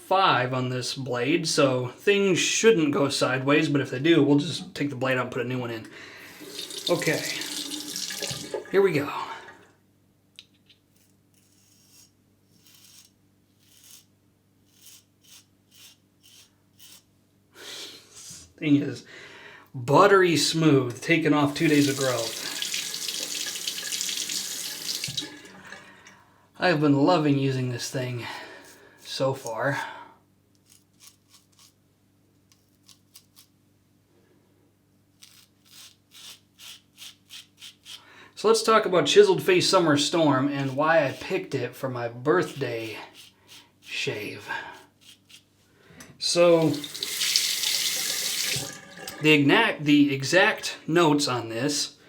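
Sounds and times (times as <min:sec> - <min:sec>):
razor rasping through stubble: 0:10.9 - 0:17.1, 0:30.6 - 0:31.8, 0:32.5 - 0:33.5, 0:35.2 - 0:38.0, 0:42.4 - 0:44.0, 0:44.7 - 0:45.5.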